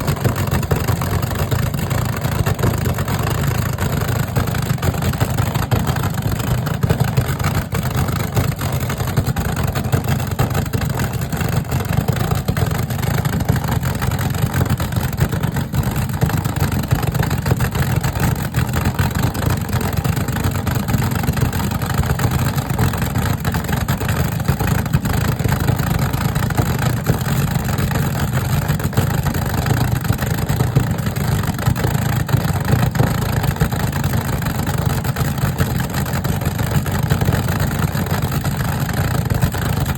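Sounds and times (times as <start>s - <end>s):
car engines rumbling: 0.0s - 39.9s.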